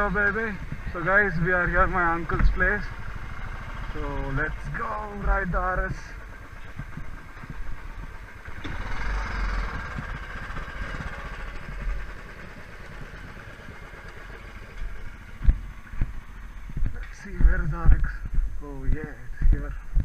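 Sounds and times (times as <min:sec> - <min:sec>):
motorcycle engine rumbling: 0:00.0 - 0:20.0.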